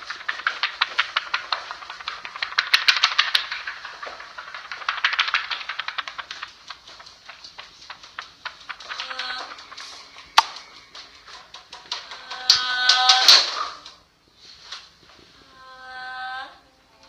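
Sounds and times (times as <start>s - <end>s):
sharp clicks and taps: 0.0s - 14.0s.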